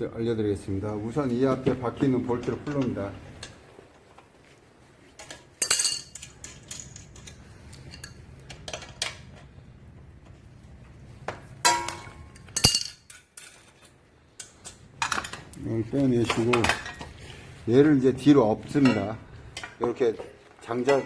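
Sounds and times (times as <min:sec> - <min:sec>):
metal tools clinking on steel: 0:05.2 - 0:09.2, 0:11.6 - 0:17.2.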